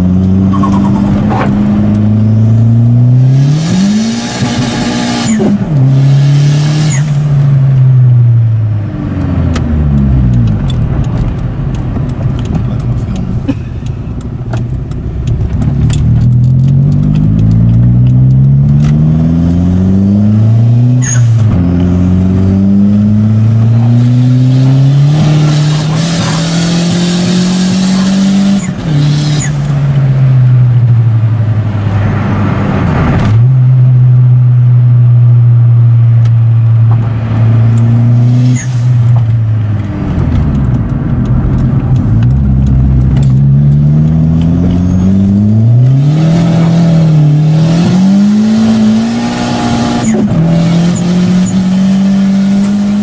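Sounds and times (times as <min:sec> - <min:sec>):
turbo car engine revving: 0:00.0 - 0:53.0.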